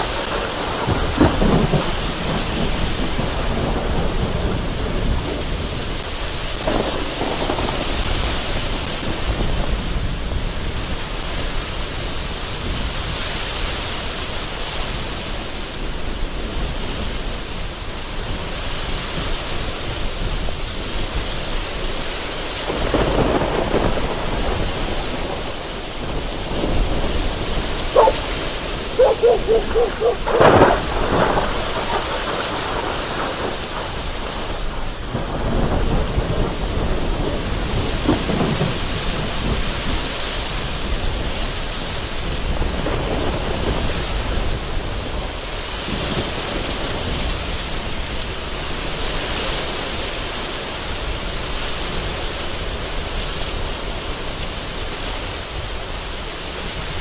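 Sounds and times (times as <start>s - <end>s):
thunder rolling: 0.0s - 10.6s, 22.7s - 39.8s
heavy rain on a window: 0.0s - 28.8s, 30.4s - 57.0s
gusting wind: 0.0s - 57.0s.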